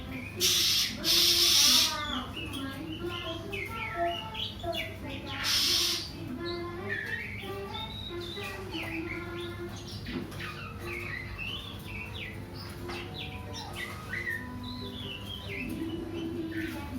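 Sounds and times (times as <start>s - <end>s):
bird singing whistles and chirps: 0.0s - 16.9s.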